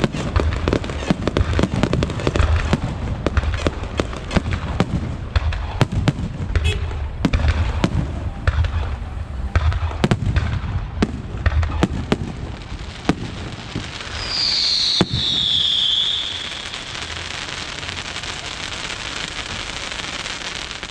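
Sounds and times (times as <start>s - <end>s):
fireworks bangs: 0.0s - 20.9s
fireworks crackling: 0.0s - 20.9s
falling firework whistle: 13.2s - 20.9s.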